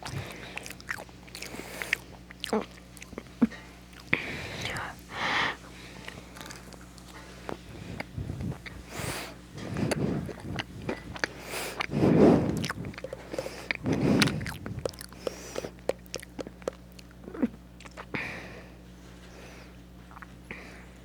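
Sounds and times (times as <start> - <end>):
crunchy chewing: 0.0 - 18.2, 19.8 - 20.5.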